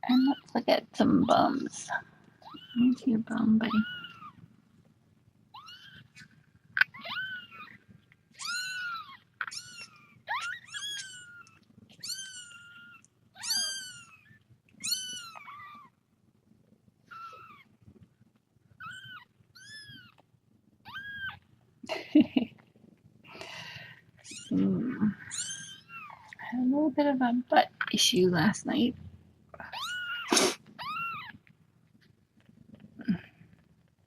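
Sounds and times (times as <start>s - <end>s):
rustling: 28.9s - 34.0s.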